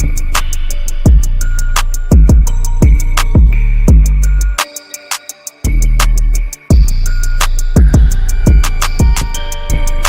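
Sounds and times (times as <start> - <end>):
hi-hat ticks: 0.0 - 10.0
hip-hop beat: 0.0 - 10.0
deep bass drum: 2.1 - 4.4, 6.7 - 7.1, 7.8 - 9.3.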